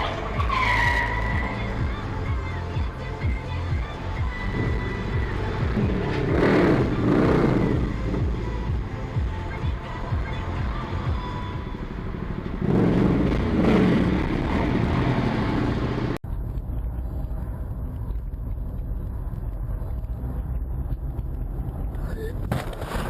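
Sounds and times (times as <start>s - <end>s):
vehicle engine running: 0.0s - 22.5s.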